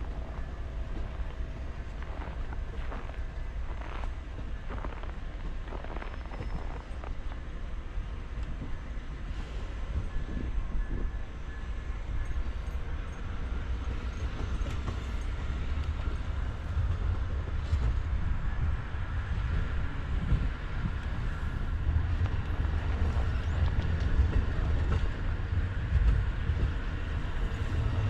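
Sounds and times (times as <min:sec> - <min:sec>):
passenger train rolling past: 0:00.0 - 0:28.0.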